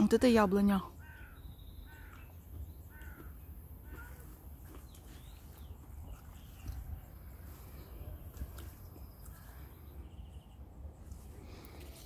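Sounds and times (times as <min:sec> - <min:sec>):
birds calling: 0:00.0 - 0:12.0
higher bird chirps: 0:00.9 - 0:08.1.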